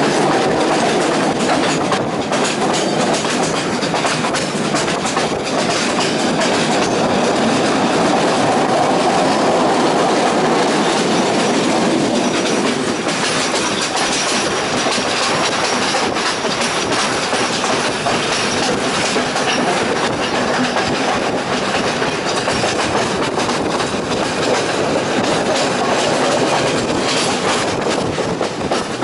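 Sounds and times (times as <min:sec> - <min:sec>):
train wheels rumbling on rails: 0:00.0 - 0:29.0
wheels clicking on rails: 0:00.0 - 0:29.0.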